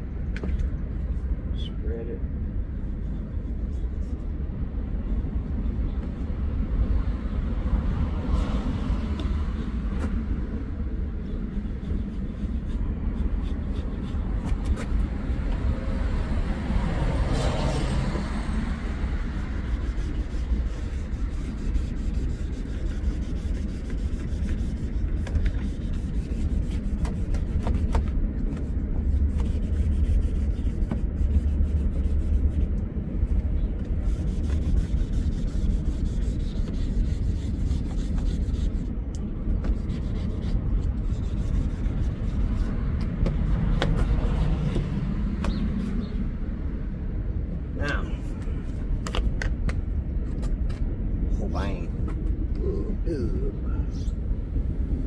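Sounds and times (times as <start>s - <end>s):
constant low rumble: 0.0s - 55.0s
cloth scrubbing plastic lens: 18.8s - 44.8s.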